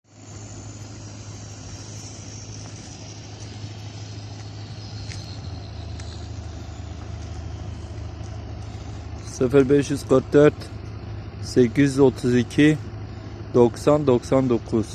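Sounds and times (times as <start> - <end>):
faint high whine: 0.0 - 14.9
low engine hum: 0.0 - 14.9
light ticks: 4.3 - 9.3.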